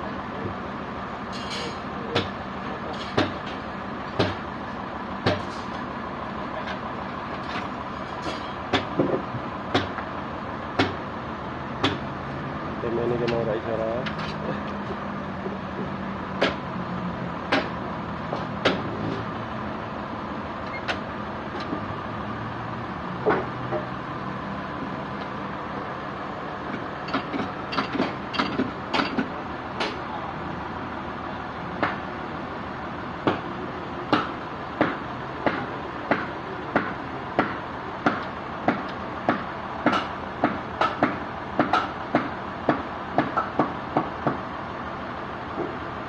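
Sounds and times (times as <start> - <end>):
sharp knocks and clanks: 1.4 - 4.4, 5.2 - 5.8, 7.4 - 10.1, 10.8 - 11.0, 11.8 - 12.1, 13.2 - 16.6, 17.5 - 19.3, 23.2 - 23.9, 26.7 - 30.0, 34.1 - 44.4.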